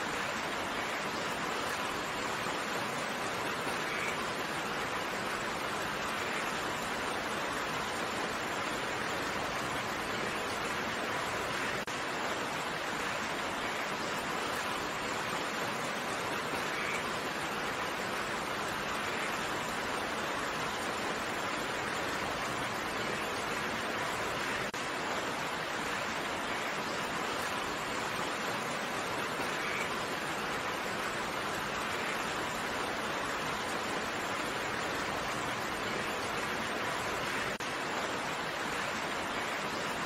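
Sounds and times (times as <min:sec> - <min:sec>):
steady rain hiss: 0:00.0 - 0:40.0.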